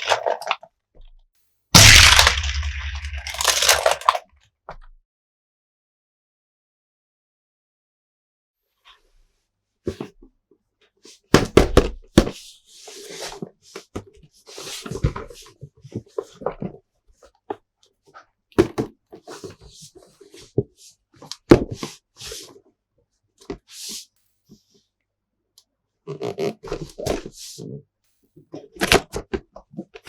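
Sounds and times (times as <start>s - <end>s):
plastic toys knocking and clicking: 1.8s - 4.2s
plastic toys scraping: 2.2s - 4.2s.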